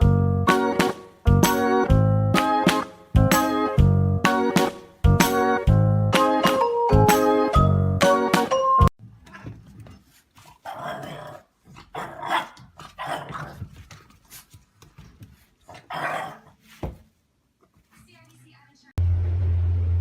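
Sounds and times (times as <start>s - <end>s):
dog growling and barking: 10.5s - 13.7s, 15.7s - 16.6s.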